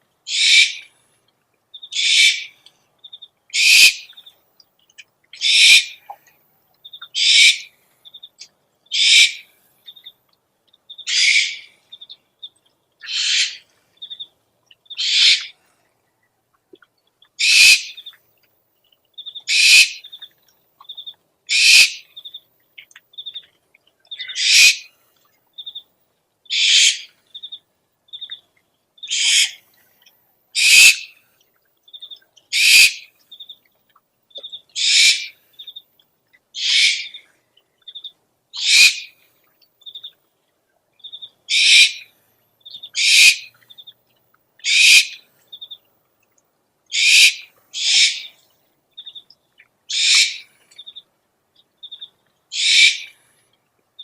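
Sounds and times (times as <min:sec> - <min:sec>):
owl hissing call: 0:00.3 - 0:00.9, 0:01.9 - 0:02.5, 0:03.6 - 0:04.0, 0:05.4 - 0:06.0, 0:07.2 - 0:07.7, 0:08.9 - 0:09.5, 0:11.1 - 0:11.7, 0:13.0 - 0:13.6, 0:15.0 - 0:15.5, 0:17.4 - 0:18.0, 0:19.5 - 0:20.0, 0:21.5 - 0:22.0, 0:24.3 - 0:24.9, 0:26.5 - 0:27.1, 0:29.1 - 0:29.6, 0:30.6 - 0:31.1, 0:32.5 - 0:33.1, 0:34.8 - 0:35.4, 0:36.6 - 0:37.2, 0:38.6 - 0:39.1, 0:41.5 - 0:42.1, 0:43.0 - 0:43.5, 0:44.6 - 0:45.2, 0:46.9 - 0:48.3, 0:49.9 - 0:50.5, 0:52.5 - 0:53.2.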